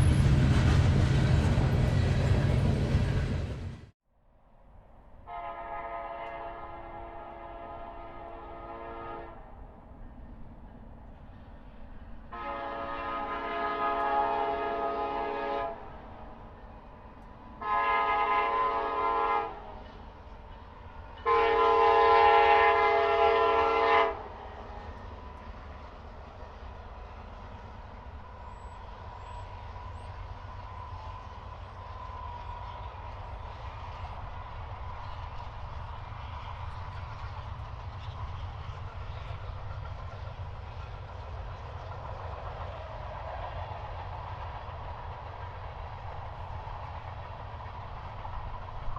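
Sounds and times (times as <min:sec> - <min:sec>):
train low rumble: 0:00.0 - 0:48.9
locomotive air horn blasts: 0:05.3 - 0:09.4, 0:12.3 - 0:15.9, 0:17.6 - 0:19.7, 0:21.2 - 0:24.3.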